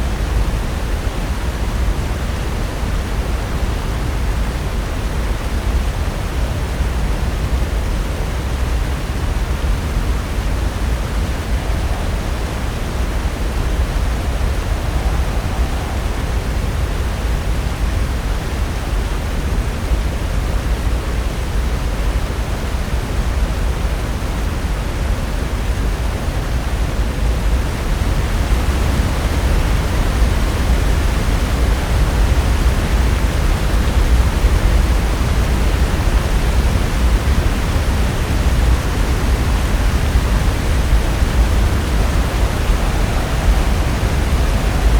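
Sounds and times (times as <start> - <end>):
ocean surf breaking: 8.5 - 19.5, 24.7 - 44.9.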